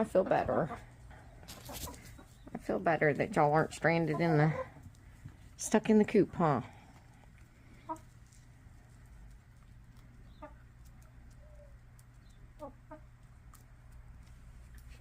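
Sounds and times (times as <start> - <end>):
hens clucking softly: 4.0 - 5.1, 7.2 - 13.6.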